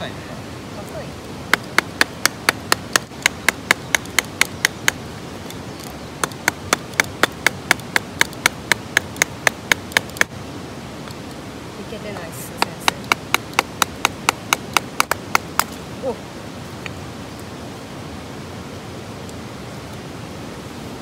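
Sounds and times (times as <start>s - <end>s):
blade knocking on hard wood: 1.5s - 5.0s, 6.2s - 10.3s, 12.6s - 15.8s.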